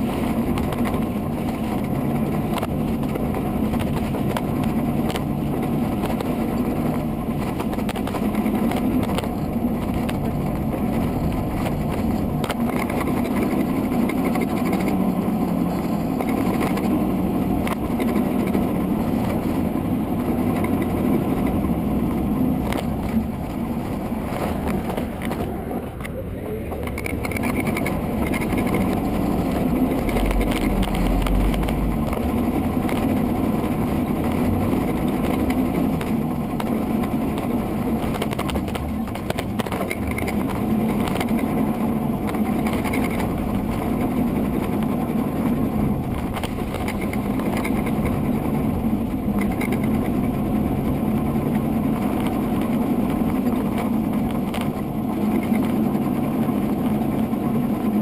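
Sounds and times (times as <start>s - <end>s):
wind rush: 0.0s - 58.0s.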